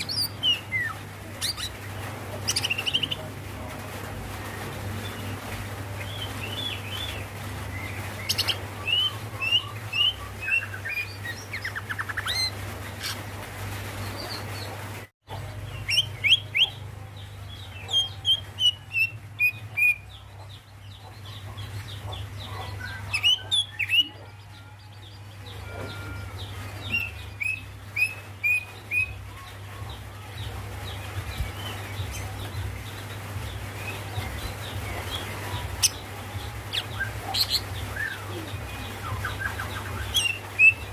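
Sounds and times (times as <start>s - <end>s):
bird chirping: 14.0s - 40.9s.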